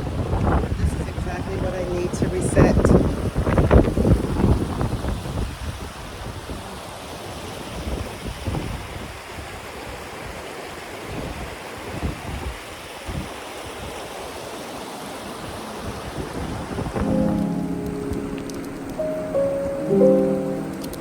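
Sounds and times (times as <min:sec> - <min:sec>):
music: 0:17.0 - 0:21.0.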